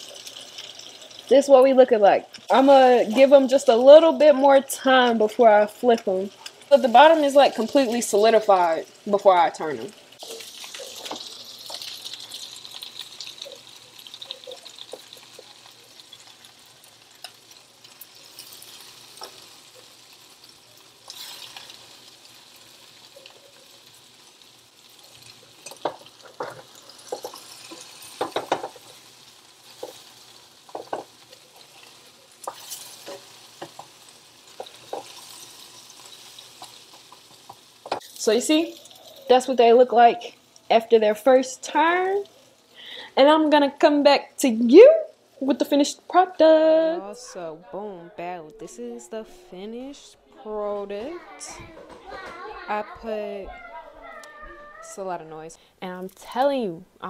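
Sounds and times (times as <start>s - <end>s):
patties sizzling in a pan: 0.0s - 47.2s
spatula tapping and scraping pan: 25.6s - 28.9s, 29.7s - 30.1s, 30.7s - 31.2s, 34.6s - 35.4s.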